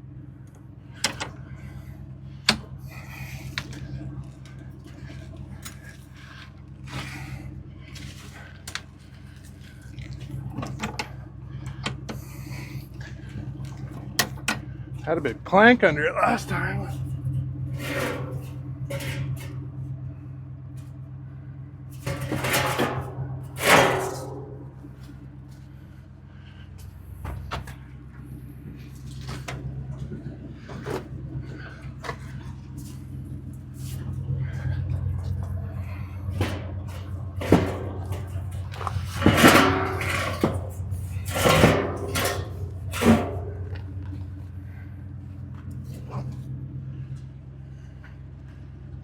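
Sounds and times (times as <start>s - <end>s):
engine idling: 0.0s - 49.0s
low hum: 0.0s - 49.0s
knocks and clattering bangs: 21.9s - 25.3s, 27.2s - 44.6s.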